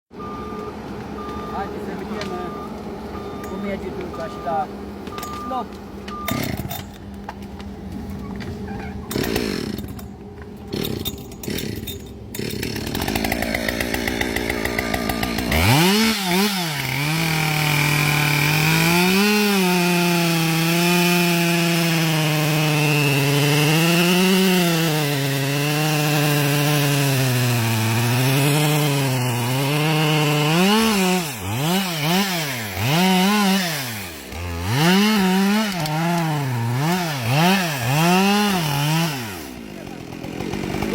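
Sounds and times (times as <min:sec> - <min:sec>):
chainsaw cutting wood: 0:03.4 - 0:40.9.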